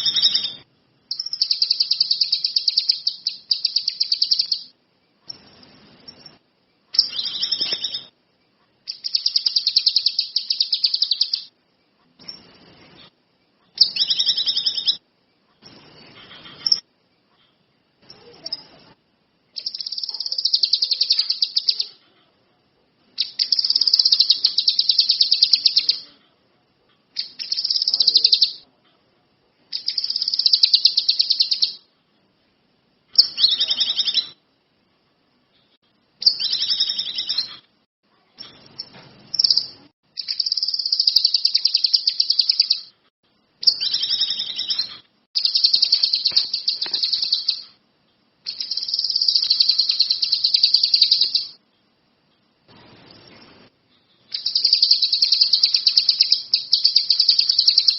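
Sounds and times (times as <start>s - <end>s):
songbird trilling: 0.0s - 4.7s, 7.0s - 8.1s, 8.9s - 11.5s, 13.7s - 15.0s, 19.6s - 22.0s, 23.2s - 26.1s, 27.2s - 28.6s, 29.8s - 31.8s, 33.2s - 34.4s, 36.2s - 37.6s, 38.4s - 42.9s, 43.6s - 47.8s, 48.5s - 51.6s, 54.3s - 57.9s.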